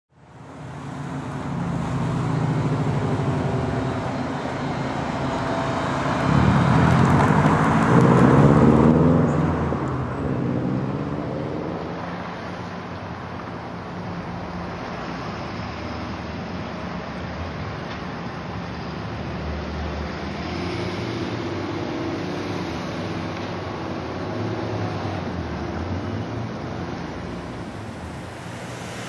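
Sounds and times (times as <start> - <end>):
road traffic rumble: 0.1 - 29.0
motor vehicle passing: 1.6 - 12.4.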